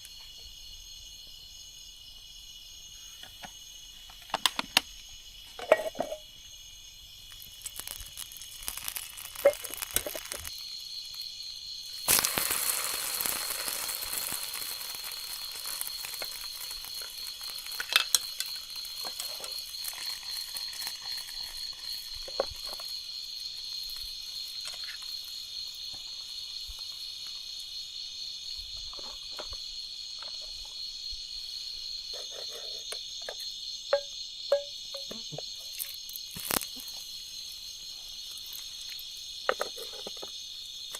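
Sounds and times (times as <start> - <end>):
night insects chirring: 0.0 - 40.9
loud hiss: 11.9 - 20.8.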